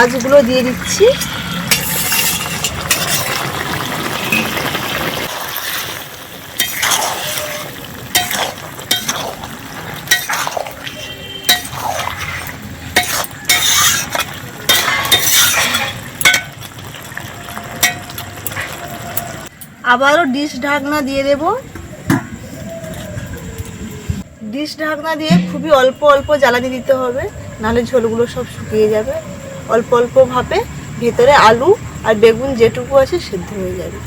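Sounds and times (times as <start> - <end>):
utensil scraping a cooking pot: 1.1 - 3.5, 6.6 - 16.6
hiss from pot: 5.2 - 11.0.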